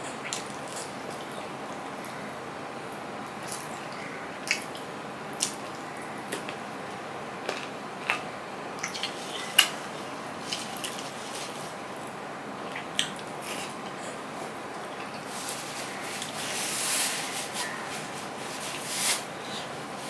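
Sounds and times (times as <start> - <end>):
steady hiss: 9.0 - 20.0.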